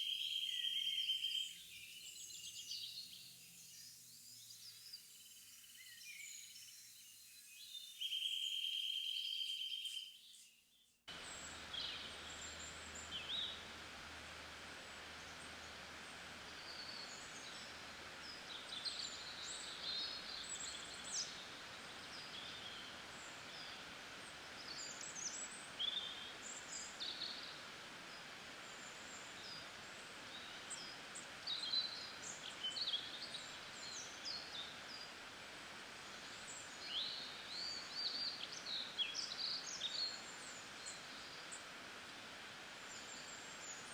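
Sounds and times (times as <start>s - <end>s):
steady background hiss: 0.0s - 10.5s, 11.1s - 43.9s
small birds chirping: 0.0s - 13.9s, 14.8s - 43.9s.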